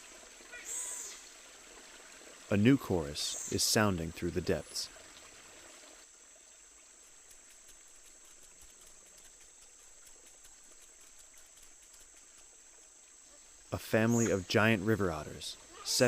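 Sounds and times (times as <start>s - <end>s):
insect chorus buzzing: 4.9s - 16.0s.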